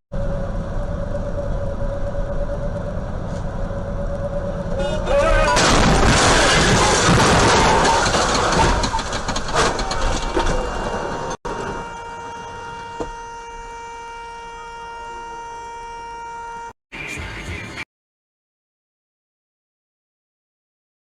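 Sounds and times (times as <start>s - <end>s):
road vehicle running: 0.1s - 15.4s.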